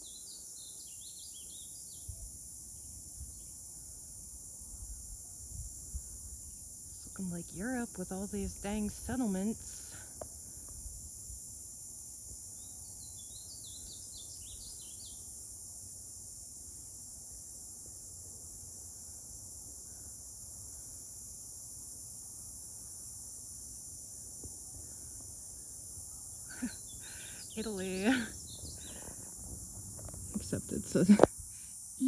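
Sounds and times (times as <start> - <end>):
insects chorus: 0.0 - 32.0
bird chirping: 26.5 - 31.1
wind on microphone: 28.2 - 31.5.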